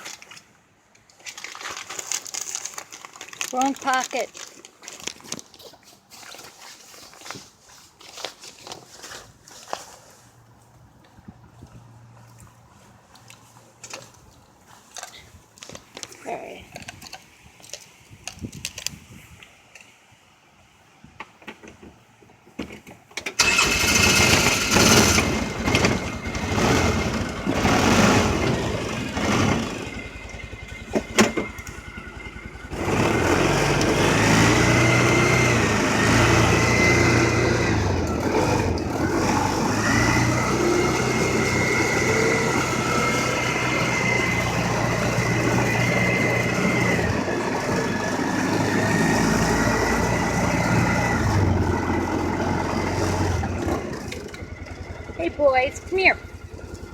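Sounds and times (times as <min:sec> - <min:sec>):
engine knocks: 0:23.4 - 0:56.9
engine whine: 0:23.4 - 0:56.9
vehicle engine running: 0:23.4 - 0:56.9.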